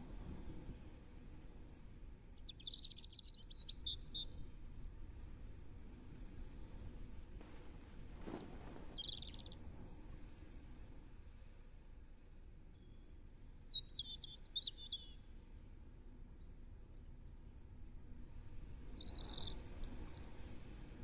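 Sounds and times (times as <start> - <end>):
faint background hiss: 0.0 - 21.0
songbird chirping: 7.4 - 9.6, 19.0 - 20.3.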